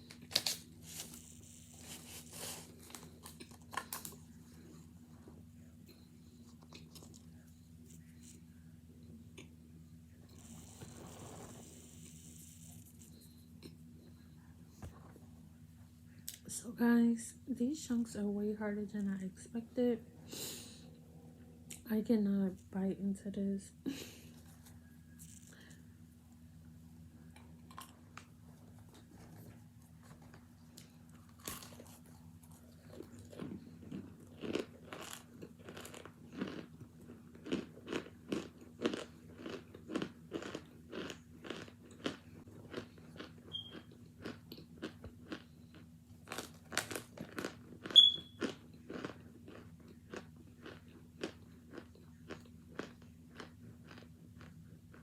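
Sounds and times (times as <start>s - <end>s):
crunching and chewing: 0.0s - 8.5s, 10.3s - 14.3s, 27.3s - 55.0s
faint low hum: 0.0s - 55.0s.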